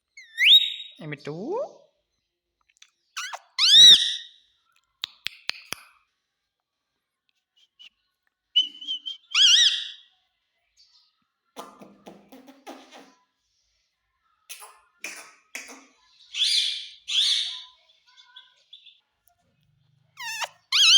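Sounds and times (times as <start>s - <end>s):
parrot whistling: 0.2s - 1.0s, 3.2s - 4.3s, 8.6s - 10.0s, 20.2s - 20.9s
parrot harsh chatter: 3.2s - 4.3s, 9.3s - 10.0s, 14.5s - 17.8s, 20.2s - 20.9s.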